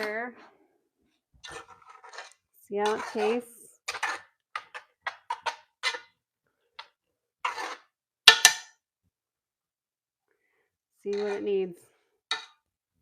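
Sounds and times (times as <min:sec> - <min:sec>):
utensil scraping: 0:01.4 - 0:06.2, 0:06.8 - 0:08.0, 0:11.1 - 0:11.6.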